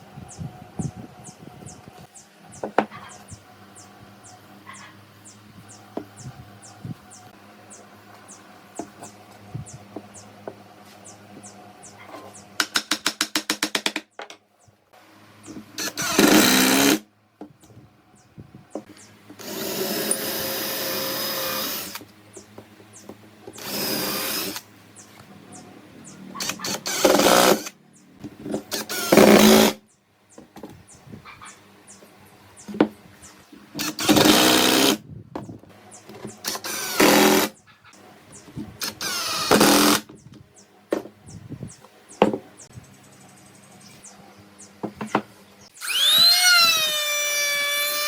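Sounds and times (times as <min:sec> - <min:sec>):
power tool running: 0:15.8 - 0:17.0, 0:19.4 - 0:22.0, 0:23.5 - 0:24.6, 0:26.3 - 0:27.8, 0:28.6 - 0:29.8, 0:33.8 - 0:35.0, 0:36.4 - 0:37.5, 0:38.8 - 0:40.1, 0:45.8 - 0:48.0.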